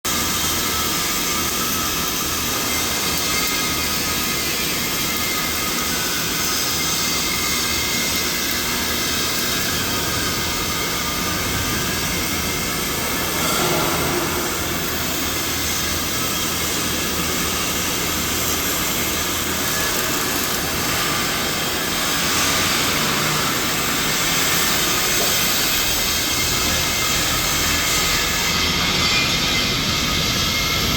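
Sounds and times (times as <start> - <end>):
machine hissing rush: 9.7 - 24.9.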